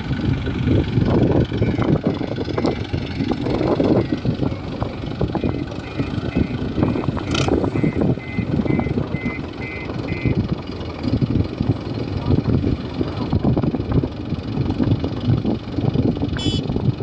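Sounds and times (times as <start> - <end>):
diesel engine rumbling: 0.0 - 17.0
faint short high beeps: 16.4 - 16.7.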